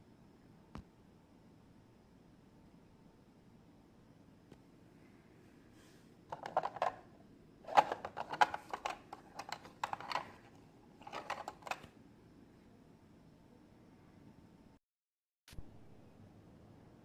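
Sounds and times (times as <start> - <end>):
plastic toy pieces clicking: 6.4 - 7.0, 7.7 - 11.9.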